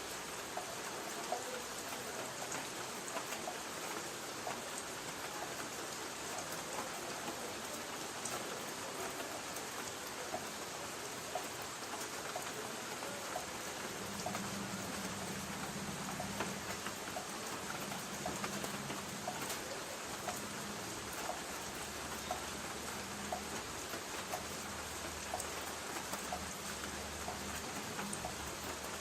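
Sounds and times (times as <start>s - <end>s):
rain on a tin roof: 0.0s - 29.0s
drip ticking: 11.3s - 29.0s.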